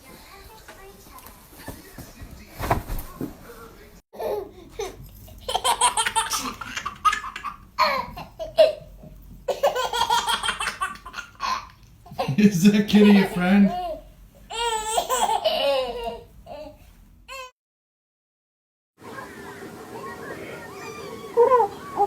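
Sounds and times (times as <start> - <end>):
baby laughing: 4.2 - 17.5.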